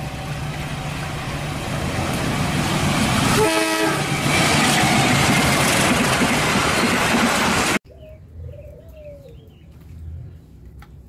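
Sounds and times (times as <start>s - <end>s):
passing train engine and wheels: 0.0s - 7.8s
train horn blast: 3.3s - 4.4s.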